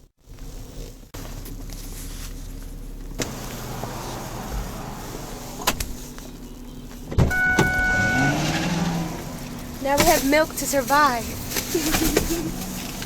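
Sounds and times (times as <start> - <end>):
motor whine rising: 3.2 - 9.8
car chime: 7.2 - 10.2.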